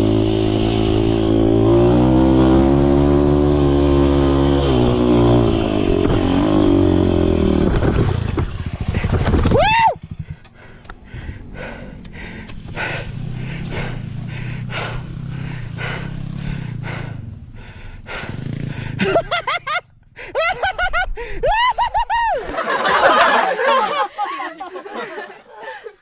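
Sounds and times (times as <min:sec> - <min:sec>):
motorcycle engine running: 0:10.0 - 0:19.0.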